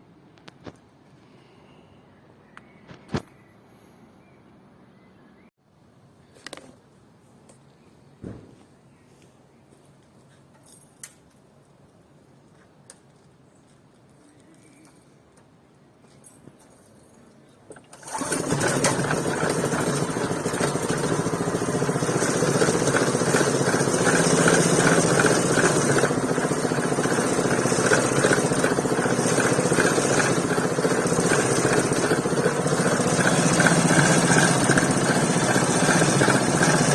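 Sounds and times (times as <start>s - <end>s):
small engine running: 17.9s - 36.9s.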